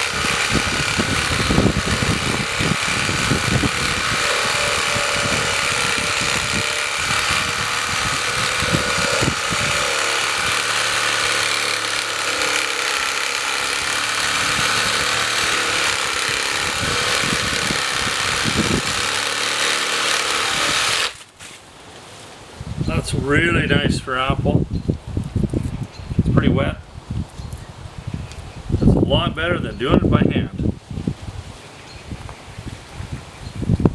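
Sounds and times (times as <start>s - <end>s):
reciprocating saw motor: 0.0s - 21.2s
saw blade knocking in wood: 0.0s - 21.2s.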